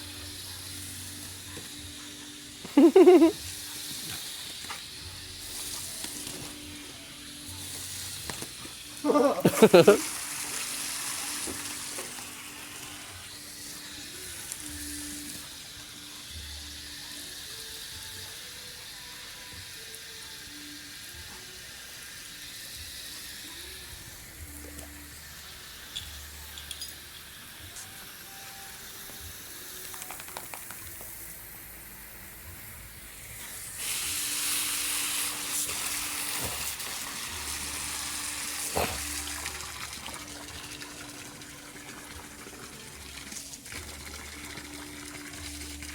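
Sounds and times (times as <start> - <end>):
running water rushing: 9.0 - 15.3.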